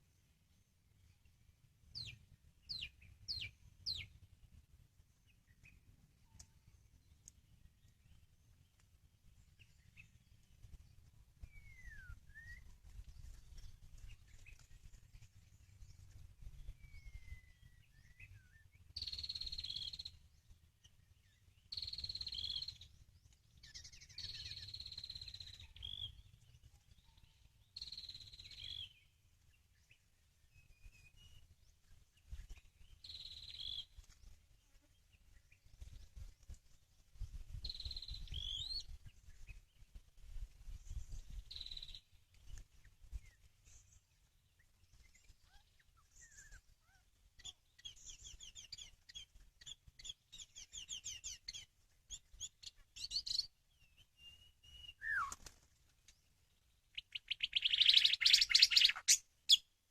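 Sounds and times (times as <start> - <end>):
faint gliding bird calls: 0.0 - 59.9
bird whistled call: 11.5 - 12.7, 54.2 - 55.4, 57.0 - 59.6.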